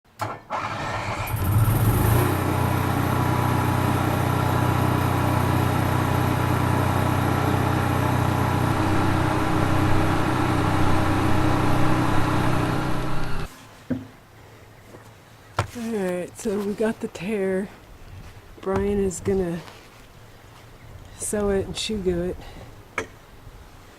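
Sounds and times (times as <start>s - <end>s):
vehicle engine running: 1.3s - 13.5s.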